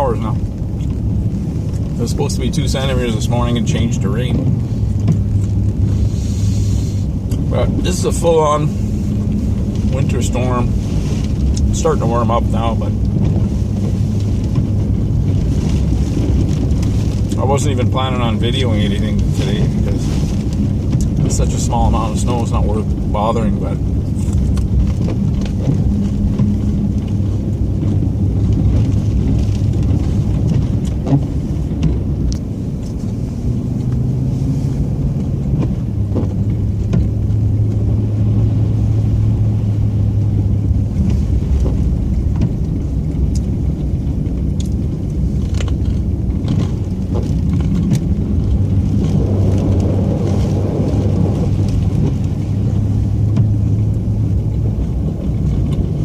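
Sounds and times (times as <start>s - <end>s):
truck engine running: 0.0s - 56.0s
faint clicks and knocks: 41.0s - 50.5s.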